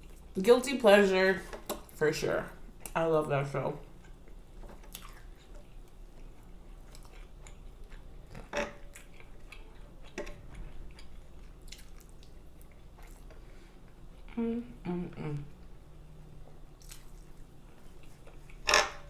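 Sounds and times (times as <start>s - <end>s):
chewing food: 3.8s - 14.4s, 16.5s - 18.7s.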